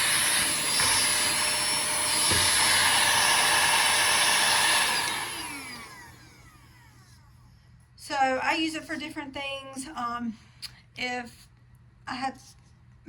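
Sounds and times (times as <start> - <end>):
handheld vacuum cleaner running: 0.0 - 7.1.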